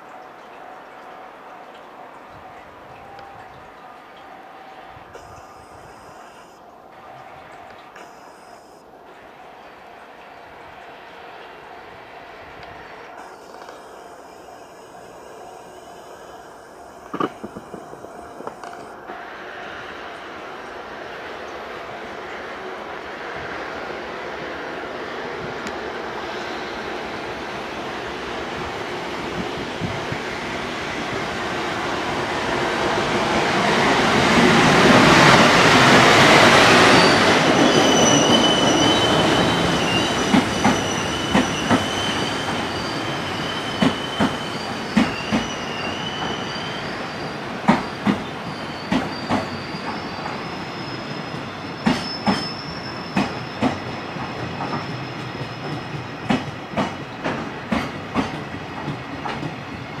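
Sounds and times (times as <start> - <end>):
electric locomotive passing: 0.0 - 60.0
wheels clicking over rail joints: 17.0 - 19.2, 53.2 - 59.6
wheel squeal: 35.1 - 56.4.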